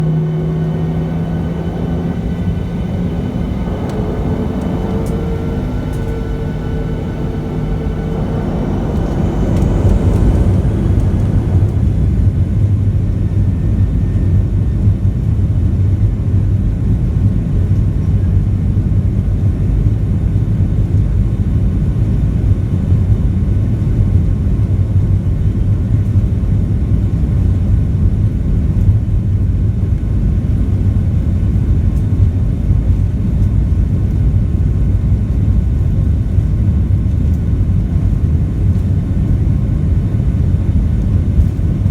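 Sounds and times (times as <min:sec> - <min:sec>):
faint rising whine: 0:00.0 - 0:14.4
aircraft cabin engine rumble: 0:00.0 - 0:41.9.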